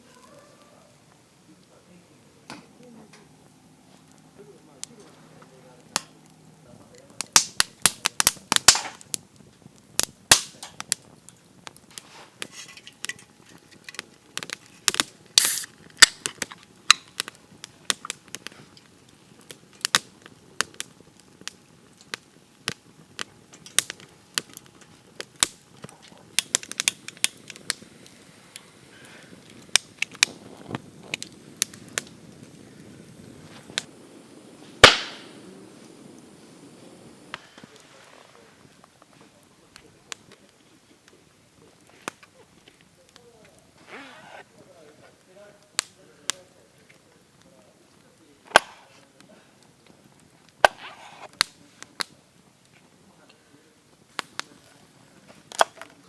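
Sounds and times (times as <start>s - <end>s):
wood cracking and snapping: 12.8s - 27.7s, 55.3s - 56.0s.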